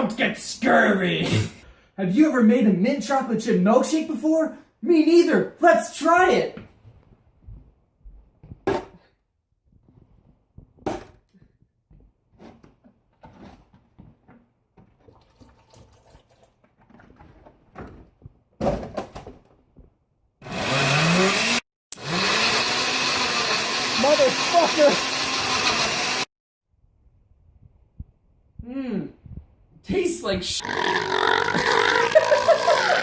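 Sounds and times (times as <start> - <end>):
electric blender running: 20.4 - 26.3, 30.6 - 33.0.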